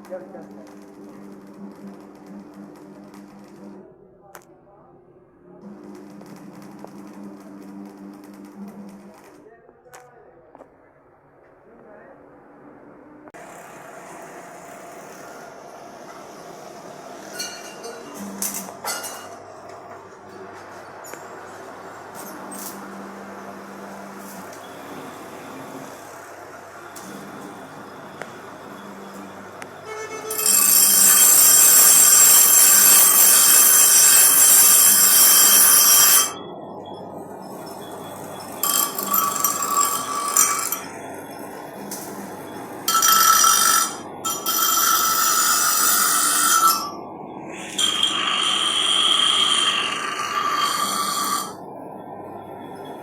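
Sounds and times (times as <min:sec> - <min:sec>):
power tool hissing on metal: 0:21.8 - 0:36.3, 0:47.5 - 0:51.6.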